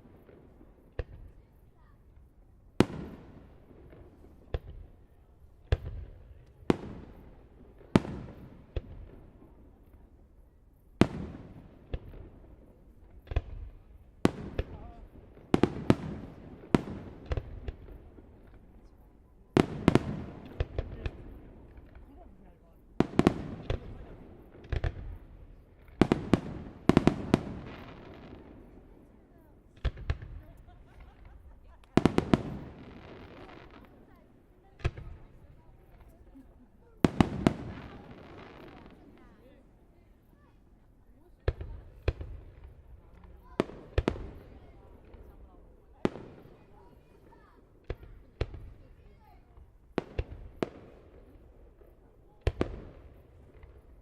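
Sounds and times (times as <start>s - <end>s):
fireworks bursting: 2.8s - 10.1s, 11.0s - 40.6s, 41.2s - 54.0s.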